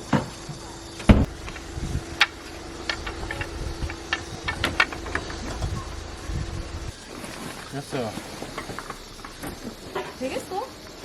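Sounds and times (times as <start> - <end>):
faint steady hum: 0.0 - 11.0
heavy thump: 1.1 - 7.0.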